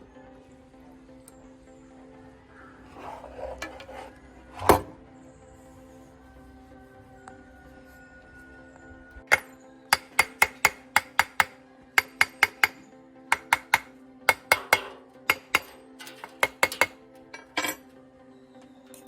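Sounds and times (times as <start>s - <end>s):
background music: 0.0s - 19.0s
hard objects clinking and knocking: 2.9s - 5.0s, 13.4s - 17.9s.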